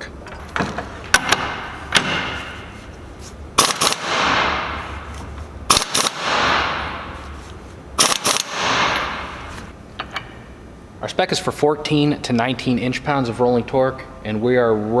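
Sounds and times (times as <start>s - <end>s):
impact wrench hammering: 0.6s - 2.7s, 3.6s - 7.4s, 8.0s - 10.2s.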